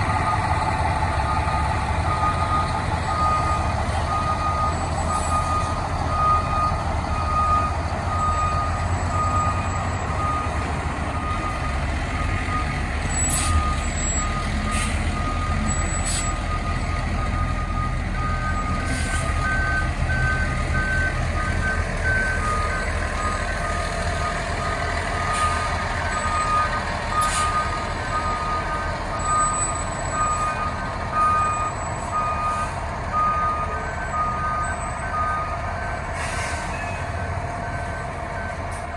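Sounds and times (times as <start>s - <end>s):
diesel engine running: 0.0s - 38.9s
reverse alarm beeping: 0.1s - 36.0s.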